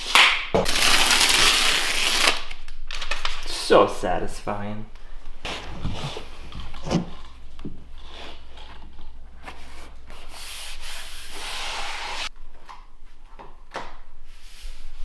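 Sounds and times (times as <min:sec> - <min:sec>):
flooring planks scraping: 0:05.5 - 0:12.3.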